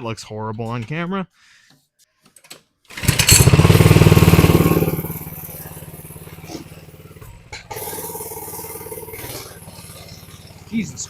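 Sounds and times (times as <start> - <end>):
small minibike engine running: 3.0 - 11.0.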